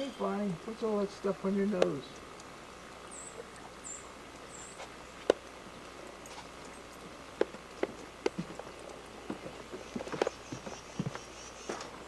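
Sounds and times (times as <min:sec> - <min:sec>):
faint high chirp: 0:03.1 - 0:04.8.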